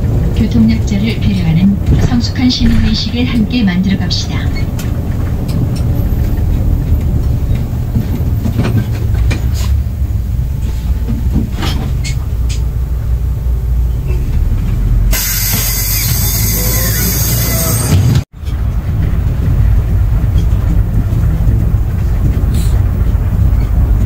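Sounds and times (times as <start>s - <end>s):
subway train rumbling: 0.0s - 24.0s
wheels clicking on track: 0.0s - 24.0s
loud hiss: 15.1s - 17.9s.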